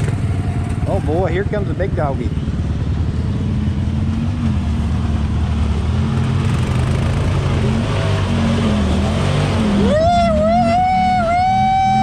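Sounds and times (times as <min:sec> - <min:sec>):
tractor engine under load: 0:00.0 - 0:03.2.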